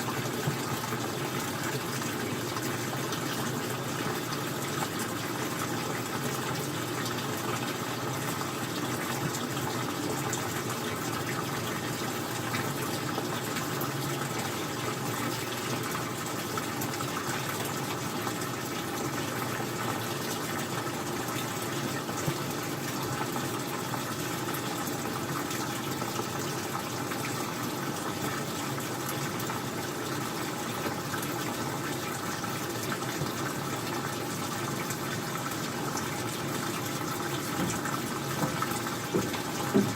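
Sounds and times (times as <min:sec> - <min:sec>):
washing machine running: 0:00.0 - 0:39.9
water rushing: 0:28.1 - 0:39.9.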